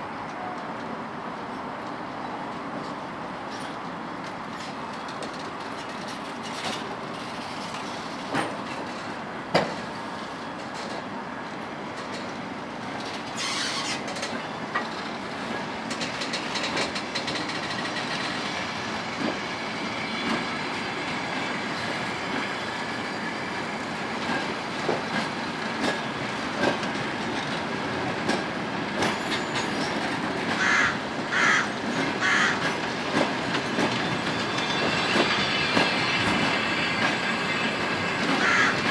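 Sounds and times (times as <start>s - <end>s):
train rumble: 0.1s - 38.9s
train wheels clicking over rail joints: 12.0s - 22.4s, 24.0s - 38.9s
wheel squeals: 13.3s - 14.2s.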